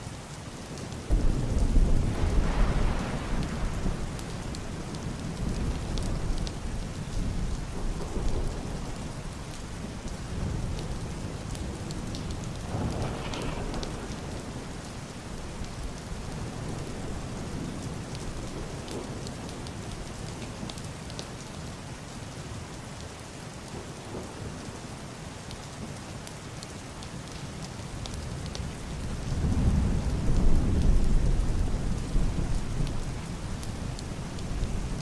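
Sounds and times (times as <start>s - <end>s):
heavy rain on roof and window: 0.0s - 35.0s
muffled thunder rumbling: 1.1s - 19.7s, 28.5s - 35.0s.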